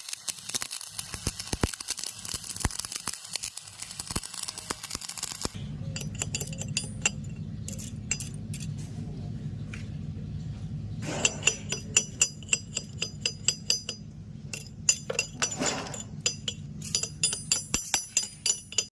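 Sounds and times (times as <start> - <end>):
low steady hum: 5.5 - 18.9
hammer tapping steel: 6.0 - 8.7, 11.0 - 18.9.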